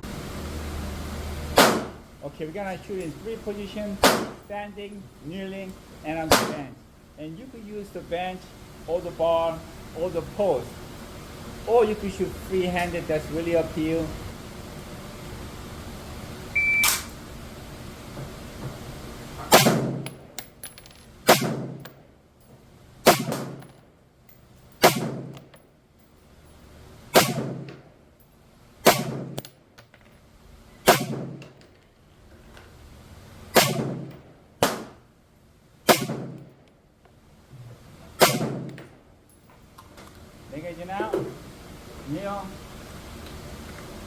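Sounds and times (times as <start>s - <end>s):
rifle shots: 1.6s - 2.0s, 4.0s - 4.5s, 6.3s - 6.7s, 19.5s - 20.1s, 21.2s - 21.8s, 23.0s - 23.7s, 24.8s - 25.4s, 27.1s - 27.8s, 28.8s - 29.4s, 30.9s - 31.5s, 33.5s - 35.0s, 35.9s - 36.5s, 38.2s - 38.8s.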